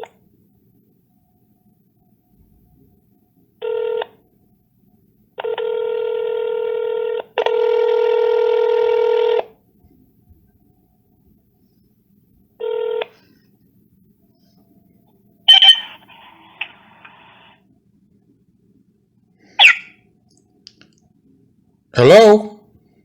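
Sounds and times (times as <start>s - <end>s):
long buzzy telephone tones: 3.6s - 4.3s, 5.4s - 9.7s, 12.5s - 13.6s
short buzzy beeps: 15.5s - 16.0s, 19.6s - 19.9s.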